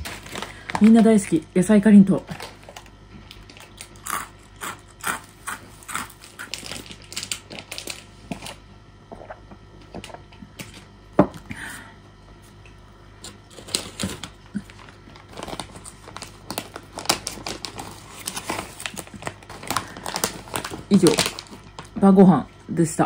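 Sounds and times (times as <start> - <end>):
crunchy snack chewing: 2.4 - 8.6.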